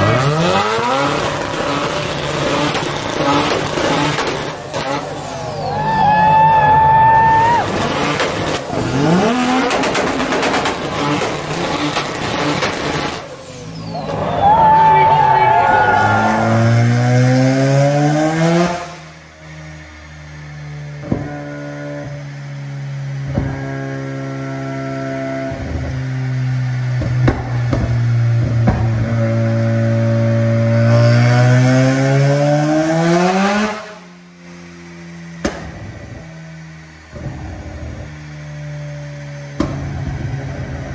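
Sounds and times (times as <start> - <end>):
car engine revving hard: 0.0 - 5.5, 7.3 - 13.7, 15.7 - 19.7, 23.1 - 34.0
tires squealing: 0.0 - 17.6.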